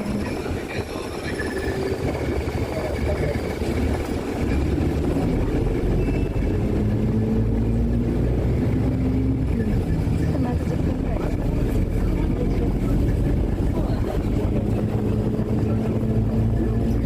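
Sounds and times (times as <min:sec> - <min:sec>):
faint voices: 0:00.0 - 0:08.2, 0:08.9 - 0:17.0
vehicle rumble: 0:00.0 - 0:17.0.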